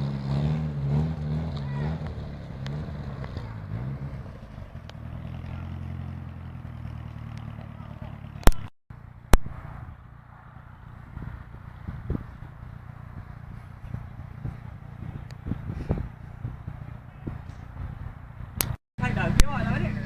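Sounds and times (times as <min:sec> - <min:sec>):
car engine running at low revs: 0:00.0 - 0:20.0
sharp clicks: 0:08.4 - 0:08.7.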